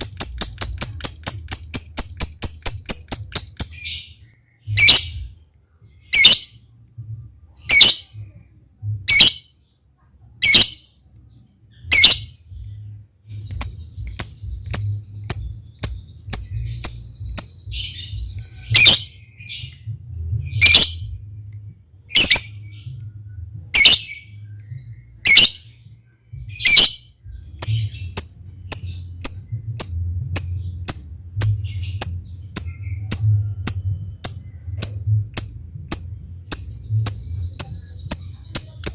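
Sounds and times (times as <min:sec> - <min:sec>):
bird ticking chirps: 0:00.0 - 0:04.0, 0:11.8 - 0:23.2, 0:26.4 - 0:38.9
faint low hum: 0:00.0 - 0:38.9
bird shrill calls: 0:22.1 - 0:22.7, 0:26.6 - 0:27.0.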